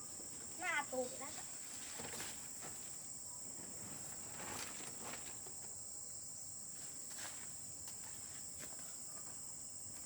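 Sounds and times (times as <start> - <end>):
soft rustles: 1.2 - 5.5.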